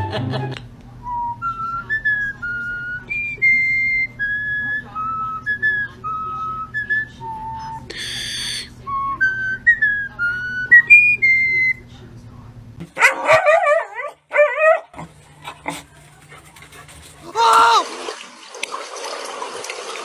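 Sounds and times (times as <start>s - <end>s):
person whistling a tune: 0.0s - 11.8s.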